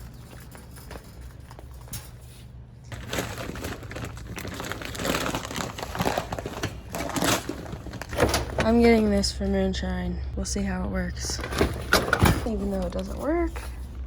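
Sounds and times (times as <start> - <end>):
crinkling rustling noise: 0.0 - 9.2
low steady hum: 0.0 - 14.0.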